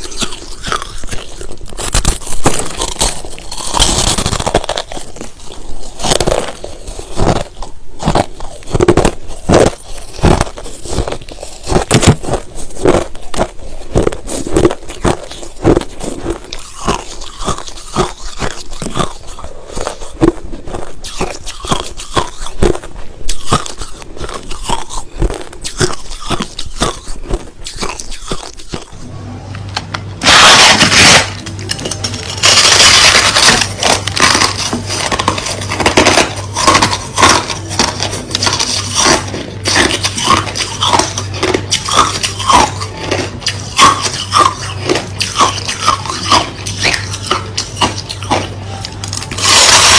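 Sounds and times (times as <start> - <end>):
crushed ice being chewed: 0.0 - 29.1, 30.2 - 49.9
low hum: 28.3 - 49.9.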